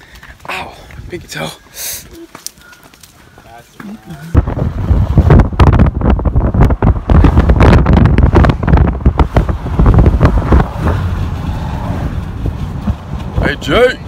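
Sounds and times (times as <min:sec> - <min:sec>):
strong wind buffeting microphone: 0:04.2 - 0:14.0.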